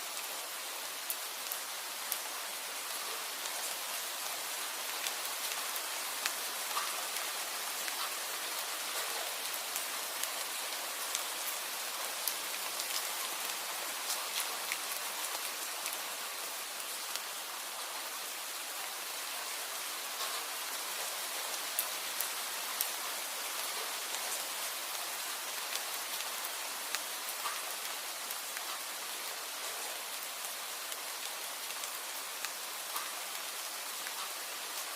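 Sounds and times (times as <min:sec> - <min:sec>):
rain hiss: 0:00.0 - 0:34.9
raindrops ticking on hard surface: 0:06.2 - 0:08.2, 0:20.2 - 0:20.5, 0:26.9 - 0:27.9, 0:31.0 - 0:33.4, 0:34.0 - 0:34.4.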